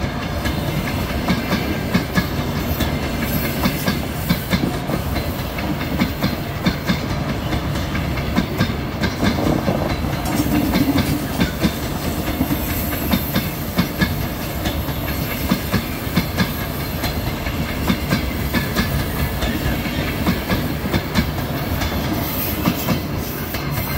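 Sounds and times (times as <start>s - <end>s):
wheels clicking over rail joints: 0.0s - 23.9s
wheels rumbling on rail: 0.0s - 23.9s.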